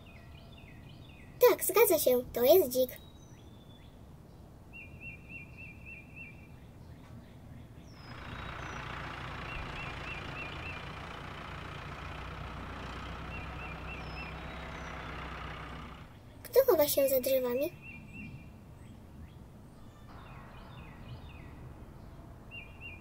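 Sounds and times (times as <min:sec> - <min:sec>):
bird chirps: 0:04.7 - 0:11.0, 0:13.0 - 0:23.0
car engine sound effect: 0:08.0 - 0:16.2.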